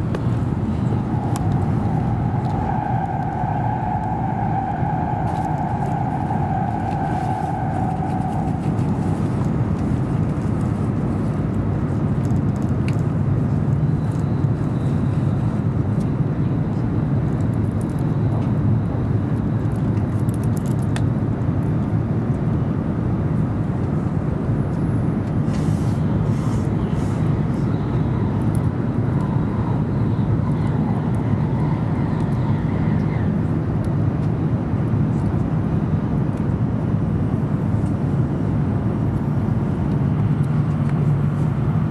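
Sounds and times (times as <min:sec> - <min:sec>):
high whine: 0:00.0 - 0:11.0
train wheels rumbling on rail: 0:00.0 - 0:16.0.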